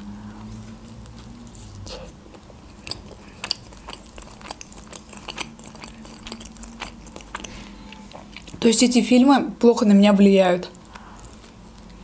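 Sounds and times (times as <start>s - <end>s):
person biting and chewing pizza: 0.4s - 8.6s.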